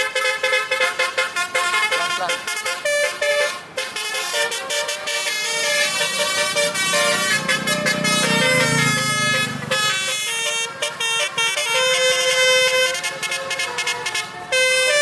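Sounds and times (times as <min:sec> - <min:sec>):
musical air horn melody: 0:00.0 - 0:15.0.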